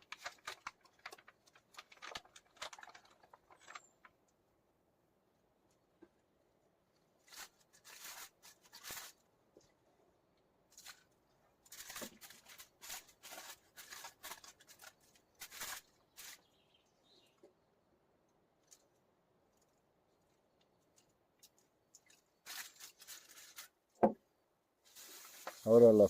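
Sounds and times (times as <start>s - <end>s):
hands rustling and crinkling: 0.0s - 4.2s, 7.0s - 9.9s, 10.7s - 16.6s, 18.6s - 23.9s, 24.8s - 26.0s.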